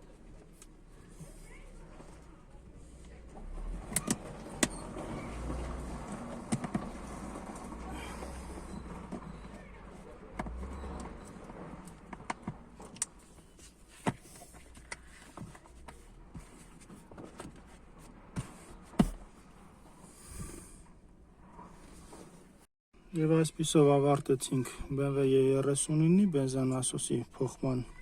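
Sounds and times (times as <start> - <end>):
dull low thud: 19.0 - 19.3.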